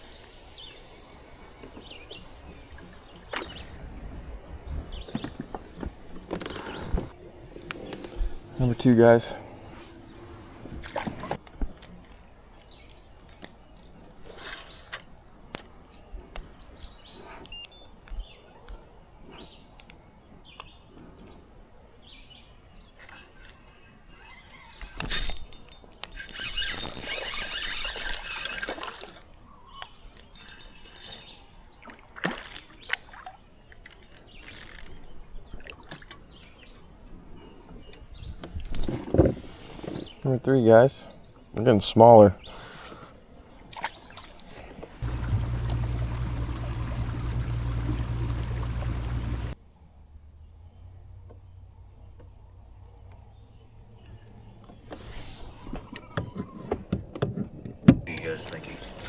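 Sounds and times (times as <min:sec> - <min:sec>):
knocks and clicks of gear: 0:45.0 - 0:49.6
water splashing: 0:45.0 - 0:49.6.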